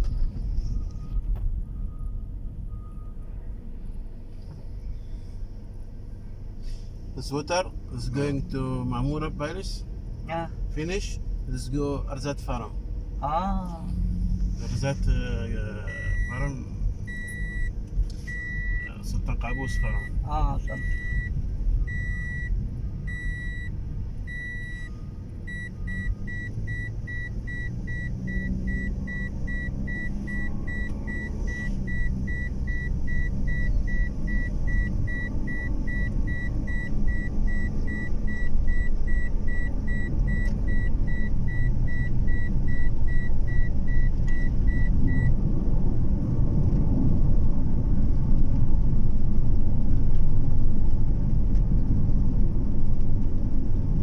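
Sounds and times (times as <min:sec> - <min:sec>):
car driving rumble: 0:00.0 - 0:54.0
in-car warning chime beeping: 0:00.6 - 0:03.4, 0:15.3 - 0:45.4.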